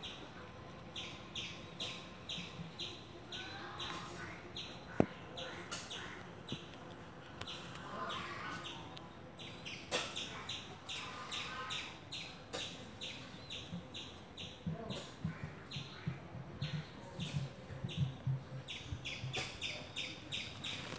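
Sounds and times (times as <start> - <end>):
low rhythmic pulsing: 12.8 - 20.4.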